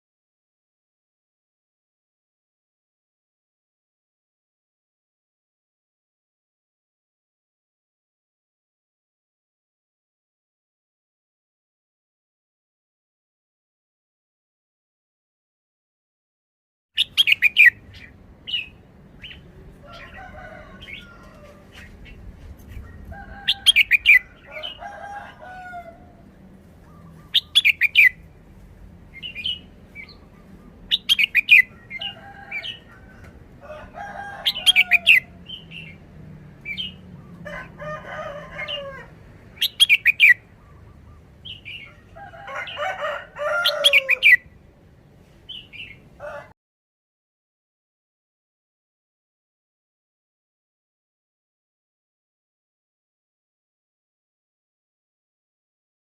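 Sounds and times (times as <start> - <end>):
bird singing song phrases: 17.0 - 24.8, 26.8 - 28.4, 29.1 - 32.9, 34.5 - 37.4, 39.5 - 42.1.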